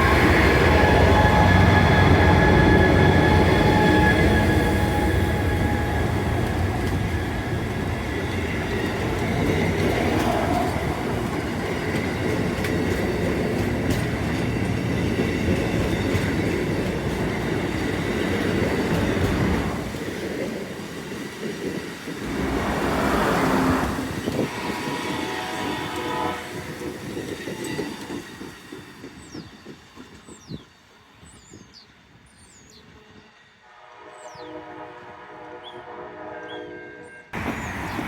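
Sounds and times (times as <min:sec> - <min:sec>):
train rumbling past: 0:00.0 - 0:38.0
short rush of noise: 0:22.2 - 0:24.3.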